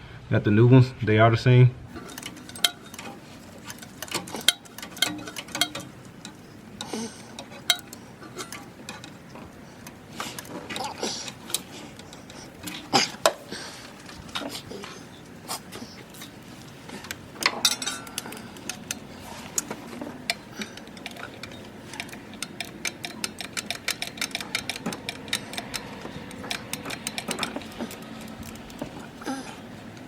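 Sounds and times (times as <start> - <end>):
socket ratchet clicking: 2.0 - 13.4, 17.1 - 29.2.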